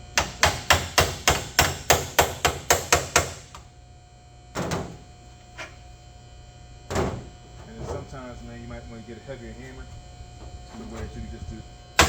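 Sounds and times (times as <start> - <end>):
dull thump: 6.9 - 8.0.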